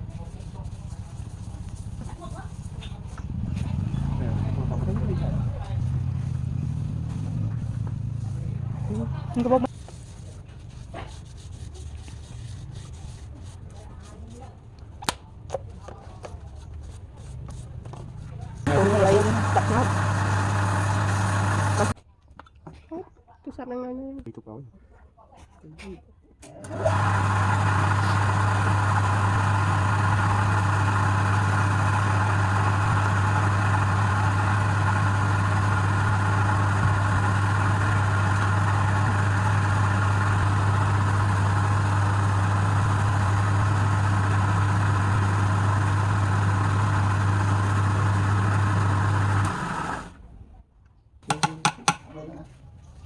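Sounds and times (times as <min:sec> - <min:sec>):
lathe motor humming: 0:18.7 - 0:22.0, 0:26.6 - 0:50.2.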